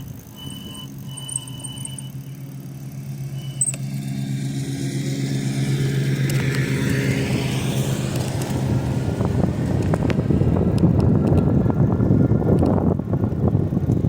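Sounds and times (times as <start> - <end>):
low engine hum: 0.0 - 14.0
road noise: 0.0 - 14.0
rushing wind: 5.0 - 14.0.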